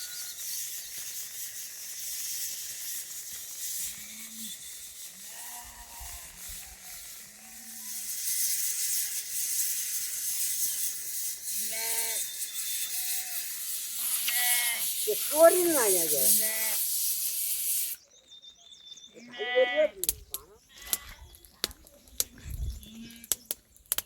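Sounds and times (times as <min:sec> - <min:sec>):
rain hissing: 0:00.0 - 0:18.1
sheep and goats calling: 0:03.8 - 0:09.1, 0:09.8 - 0:16.9, 0:19.2 - 0:21.2.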